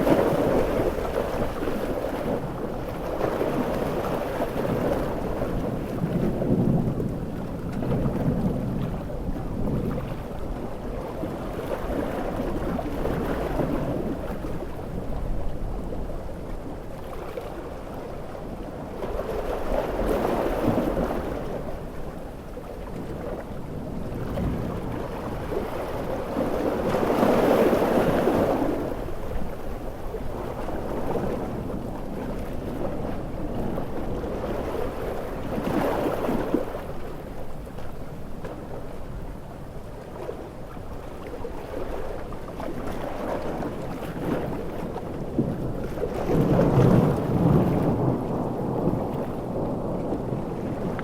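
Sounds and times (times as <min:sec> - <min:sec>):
sea waves breaking: 0:00.0 - 0:51.0
low thunder rumbles: 0:05.0 - 0:10.6, 0:45.2 - 0:51.0
heavy rain: 0:46.8 - 0:51.0.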